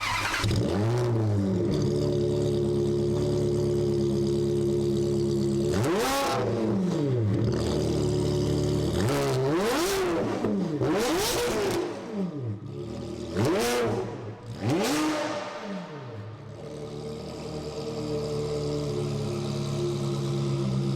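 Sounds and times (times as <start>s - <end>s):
car engine revving: 0.0s - 20.9s.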